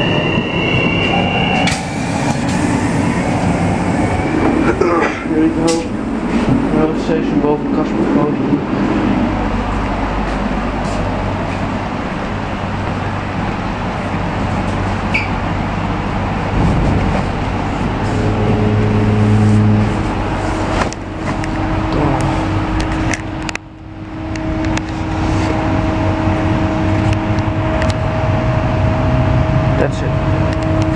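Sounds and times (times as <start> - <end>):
train running rumble: 0.0 - 30.9
humming tones: 16.5 - 29.7.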